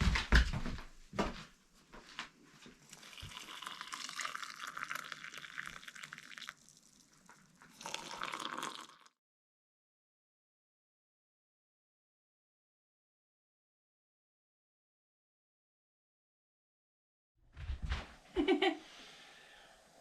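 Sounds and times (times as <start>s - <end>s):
hot water pouring into a mug: 2.8s - 9.2s.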